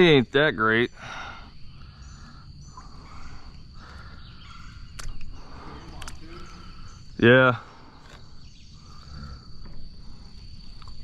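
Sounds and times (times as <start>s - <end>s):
sharp clicks: 4.9s - 6.2s.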